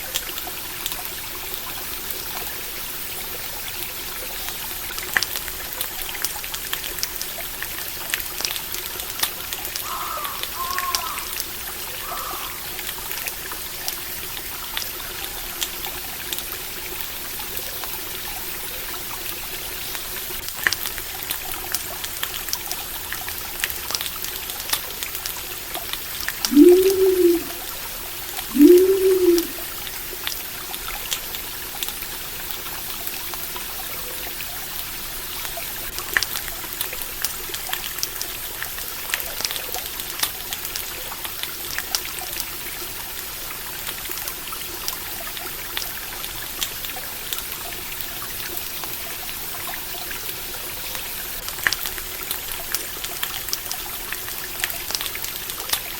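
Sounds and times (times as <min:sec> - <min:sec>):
stream water trickling: 0:00.0 - 0:55.9
low rising and falling call: 0:26.5 - 0:27.6, 0:28.5 - 0:29.6.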